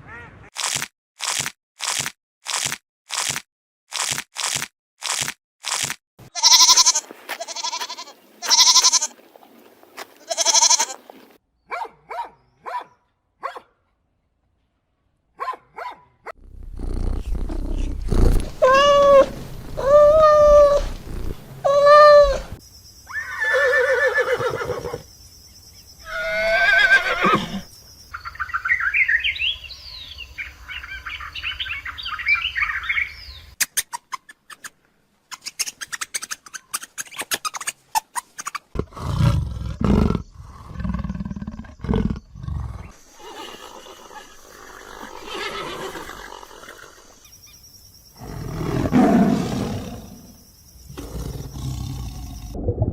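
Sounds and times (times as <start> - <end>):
harsh animal cries: 6.3 - 9.2, 10.2 - 11.0, 16.6 - 25.0, 26.0 - 27.7, 41.3 - 47.2
long steady animal calls: 18.6 - 25.1, 26.0 - 28.5, 39.0 - 52.6.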